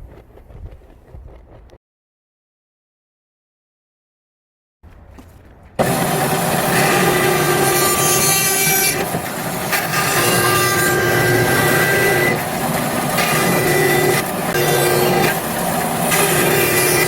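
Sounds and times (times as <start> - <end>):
electric grinder grinding steel: 5.8 - 17.0.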